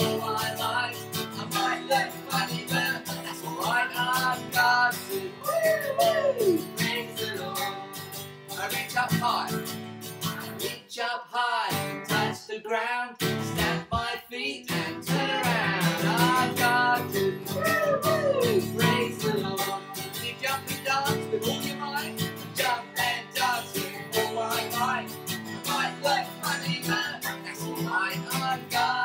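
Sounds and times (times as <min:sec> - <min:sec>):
strummed acoustic guitar: 0:00.0 - 0:10.9, 0:11.6 - 0:12.5, 0:13.2 - 0:29.0
person singing: 0:00.0 - 0:29.0.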